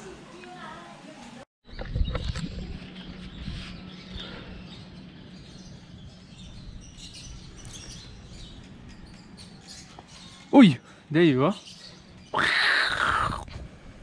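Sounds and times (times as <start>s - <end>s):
birds chirping: 1.7s - 13.5s.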